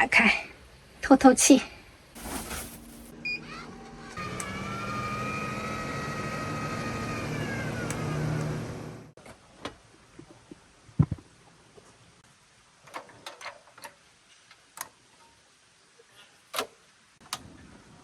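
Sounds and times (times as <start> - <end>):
vent fan motor whining: 2.4 - 9.1.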